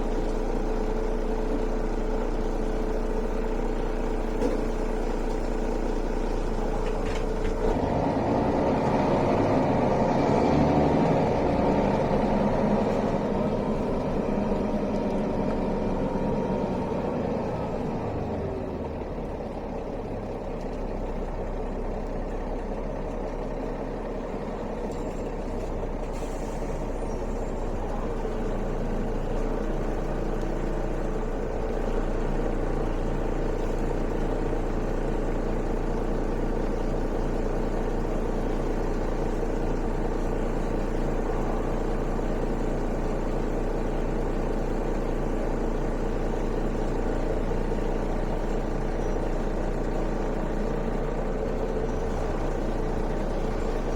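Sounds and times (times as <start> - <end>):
bus diesel engine running: 0.0 - 53.9.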